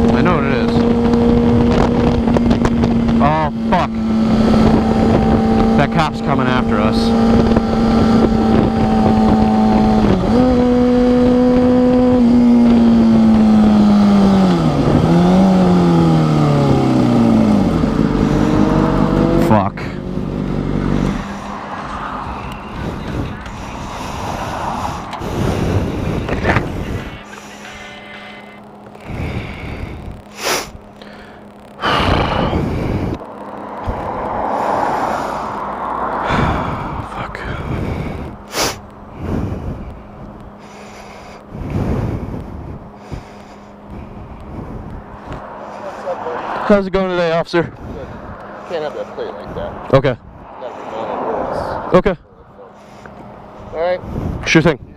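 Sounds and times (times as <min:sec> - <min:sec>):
motorcycle engine running: 0:00.0 - 0:50.5
wind rushing: 0:00.7 - 0:19.4, 0:20.0 - 0:27.4, 0:31.8 - 0:40.6, 0:41.4 - 0:54.9
heavy breathing: 0:20.8 - 0:46.6, 0:47.7 - 0:54.6.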